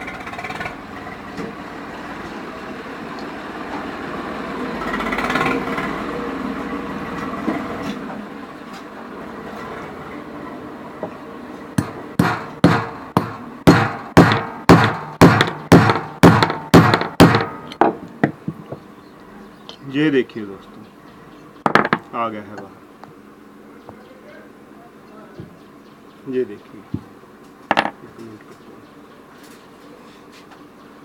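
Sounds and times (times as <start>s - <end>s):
dull working noise: 0.0s - 31.0s
hammer striking metal: 11.8s - 18.4s.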